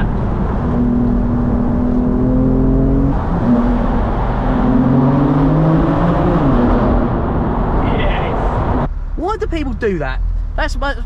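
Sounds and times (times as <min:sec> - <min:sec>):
car engine accelerating hard: 0:00.0 - 0:08.9.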